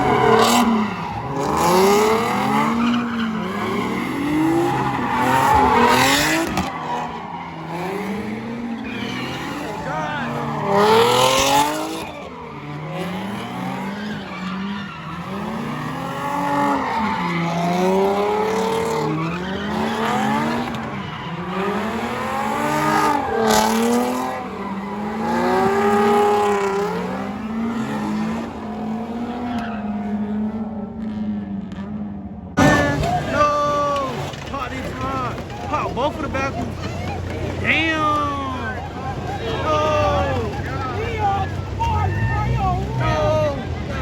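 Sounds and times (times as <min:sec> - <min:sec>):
tyres squealing: 0:00.0 - 0:30.0, 0:32.6 - 0:44.0
car engine revving hard: 0:00.0 - 0:32.0.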